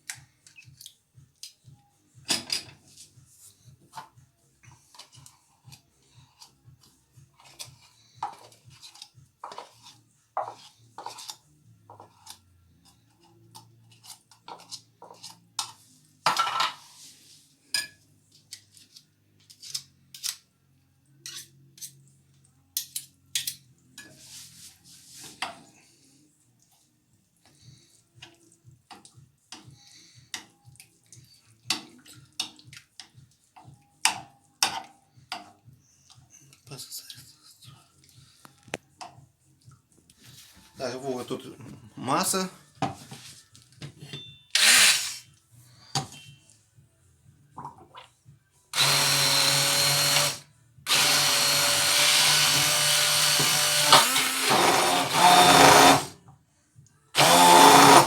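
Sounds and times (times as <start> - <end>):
dishes and cutlery clinking: 2.2 - 2.9, 7.4 - 17.0, 17.7 - 18.8, 34.0 - 35.6, 43.8 - 44.5.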